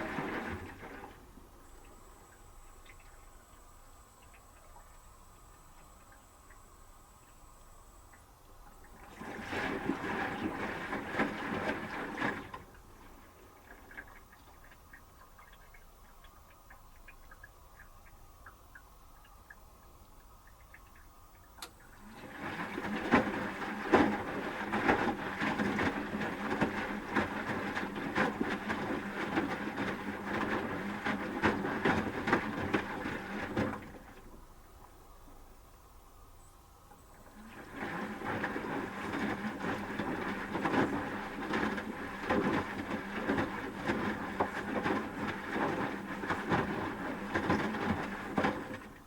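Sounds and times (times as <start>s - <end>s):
water sloshing: 0.0s - 6.7s, 7.5s - 35.5s, 36.9s - 49.0s
faint clicks: 14.3s - 21.9s.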